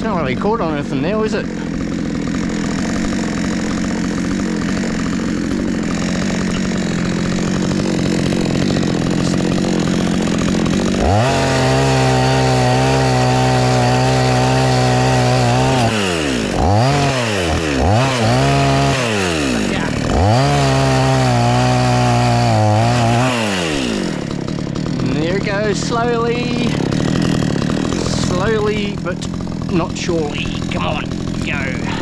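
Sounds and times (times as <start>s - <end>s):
chainsaw cutting into tree trunk: 0.0s - 32.0s.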